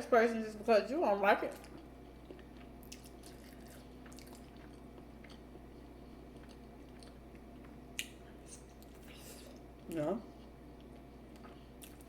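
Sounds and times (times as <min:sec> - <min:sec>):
steady low hum: 0:00.0 - 0:12.0
person chewing: 0:01.6 - 0:12.0.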